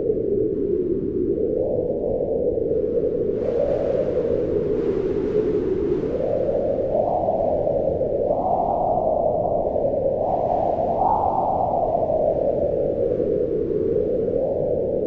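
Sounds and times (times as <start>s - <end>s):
howling wind: 0.0s - 15.0s.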